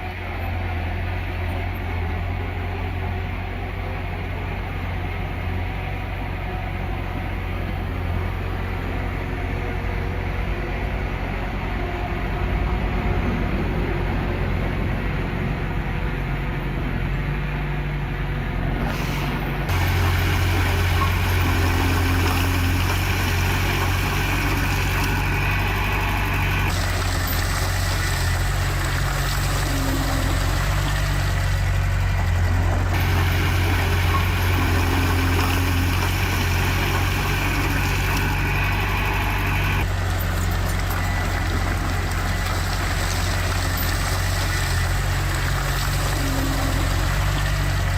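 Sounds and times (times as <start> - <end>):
heavy diesel machinery droning: 0.0 - 47.9.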